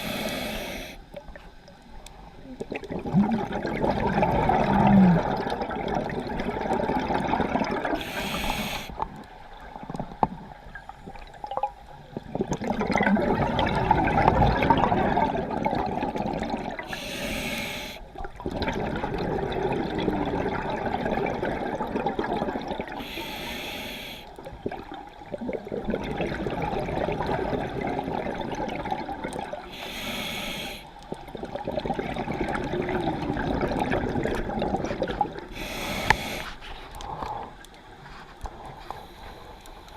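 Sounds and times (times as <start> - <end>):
regulator inhalation hiss: 0.0 - 1.0, 8.0 - 9.0, 16.9 - 18.1, 23.0 - 24.4, 29.7 - 31.0, 35.5 - 36.6
exhaled bubbles rushing: 2.6 - 8.0, 9.8 - 17.0, 18.2 - 23.0, 24.6 - 29.7, 31.1 - 35.6.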